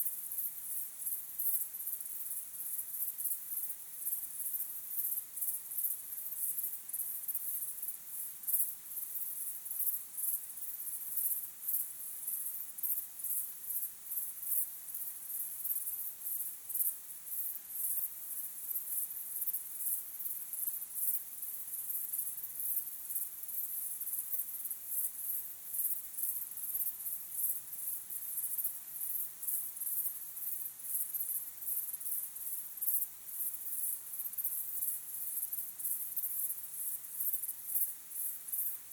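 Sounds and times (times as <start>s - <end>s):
crickets chirping: 9.0s - 38.8s.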